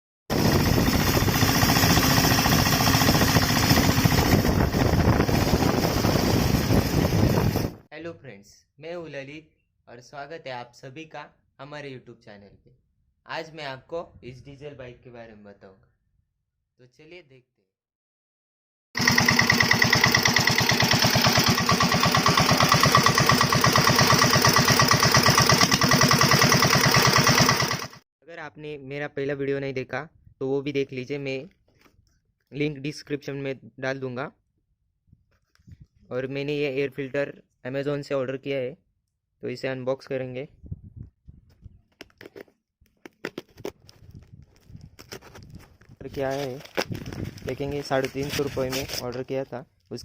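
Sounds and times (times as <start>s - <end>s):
diesel motorcycle engine running: 0.3s - 7.8s, 19.0s - 28.0s.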